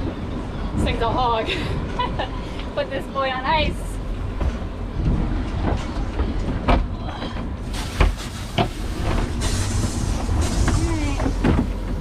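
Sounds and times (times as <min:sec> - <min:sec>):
hiss of noise: 0:07.6 - 0:11.9.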